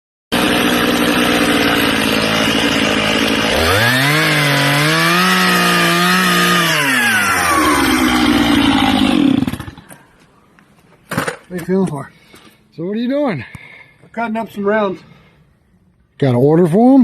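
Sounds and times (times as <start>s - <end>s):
chainsaw cutting log: 0.3s - 10.0s.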